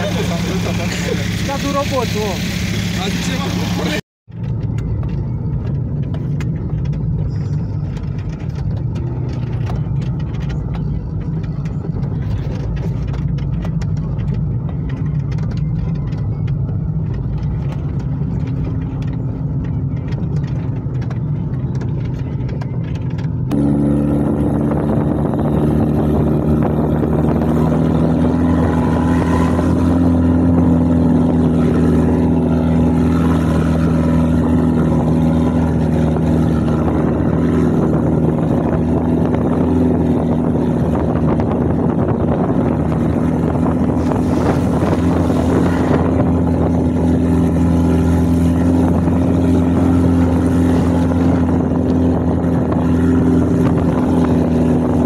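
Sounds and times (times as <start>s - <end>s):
engine running steadily: 0.0s - 55.0s
loud high engine note: 23.5s - 30.1s.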